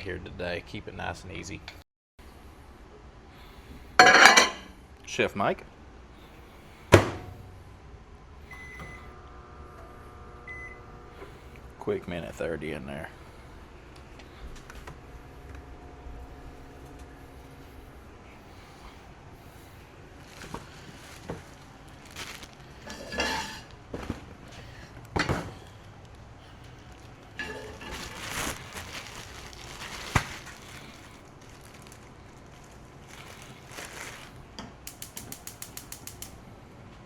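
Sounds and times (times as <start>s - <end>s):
plates and pans clinking: 4.0s - 4.7s, 22.9s - 23.7s
fast even clicks: 34.9s - 36.4s.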